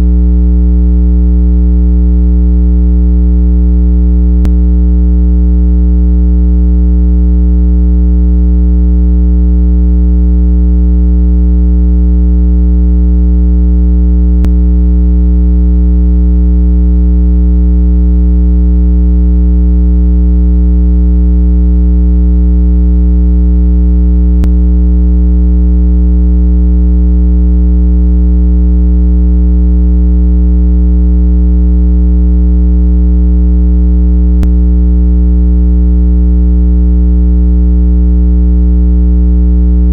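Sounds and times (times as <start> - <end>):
low buzzy electronic tone: 4.4 - 4.7, 14.4 - 14.7.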